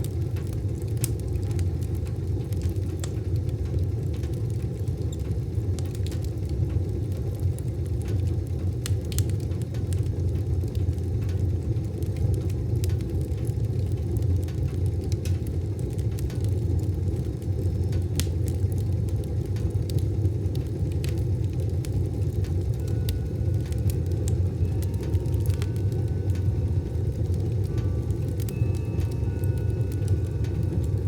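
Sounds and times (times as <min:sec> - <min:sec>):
wood fire crackling in stove: 0:00.0 - 0:31.0.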